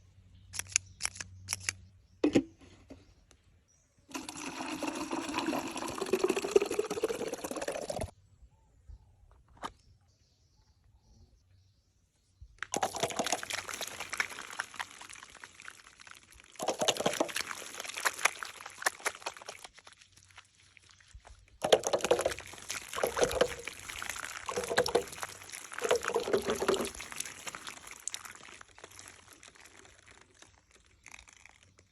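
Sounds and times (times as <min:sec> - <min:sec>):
water pouring and splashing: 0:04.1 - 0:08.1, 0:12.6 - 0:31.9.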